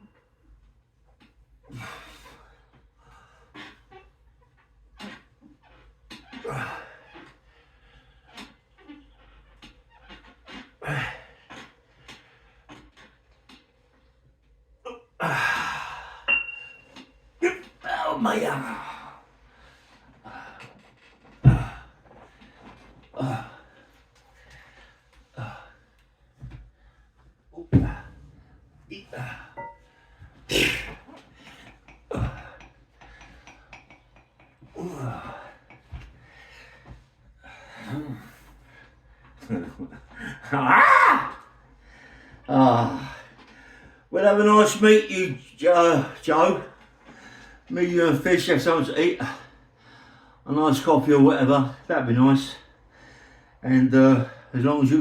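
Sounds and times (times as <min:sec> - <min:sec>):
man panting: 0:34.7 - 0:39.0
man breathing hard: 0:52.8 - 0:53.6.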